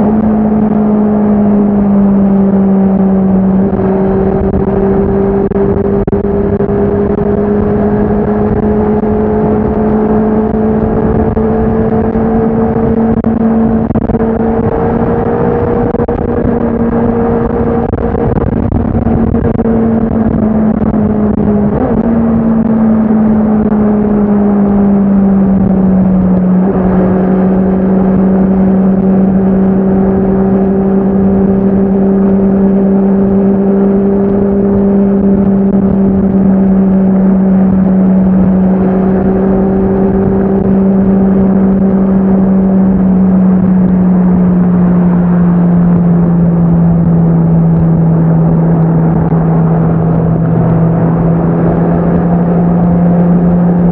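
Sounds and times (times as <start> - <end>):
motorcycle engine revving high: 0.0 - 53.9.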